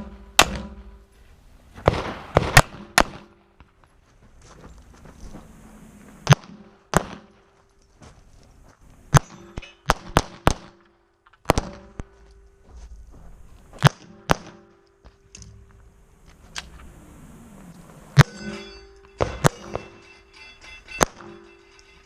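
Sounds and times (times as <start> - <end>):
pistol shots: 0.0 - 0.8, 1.8 - 3.4, 6.2 - 7.4, 9.1 - 12.1, 13.8 - 14.8, 19.2 - 20.1
steel targets ringing: 0.0 - 1.1, 9.1 - 9.9, 18.0 - 22.0.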